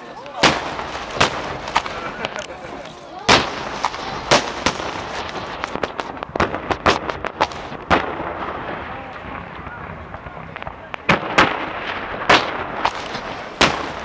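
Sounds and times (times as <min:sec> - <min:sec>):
background murmur: 0:00.0 - 0:14.0
fireworks bangs: 0:00.0 - 0:14.0.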